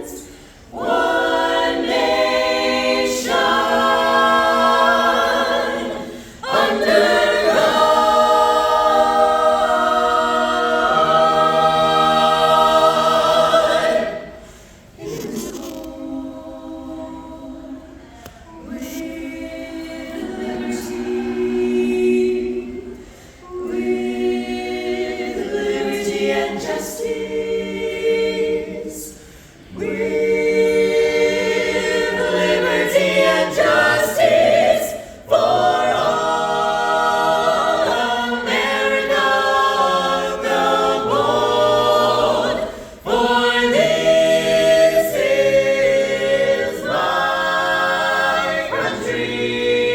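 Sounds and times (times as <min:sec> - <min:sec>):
vocal ensemble singing in harmony: 0:00.0 - 0:49.9.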